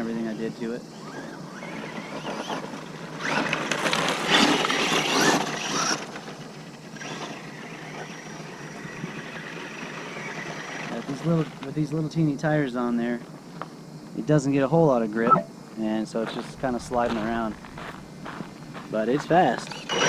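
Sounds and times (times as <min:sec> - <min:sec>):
tires scrabbling over dirt: 0:00.9 - 0:11.9, 0:16.2 - 0:20.0
electric motor whining: 0:19.6 - 0:20.0.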